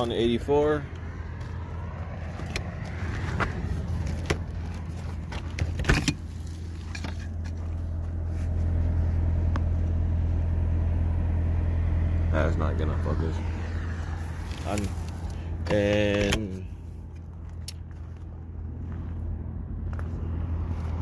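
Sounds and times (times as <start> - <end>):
road noise: 0.0 - 21.0
vehicle engine drone: 0.0 - 21.0.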